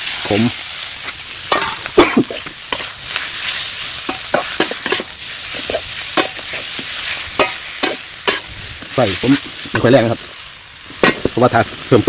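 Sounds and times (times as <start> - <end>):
stir-fry sizzling in a pan: 0.0 - 12.0
spatula scraping and knocking pan: 1.0 - 3.3, 4.0 - 8.5.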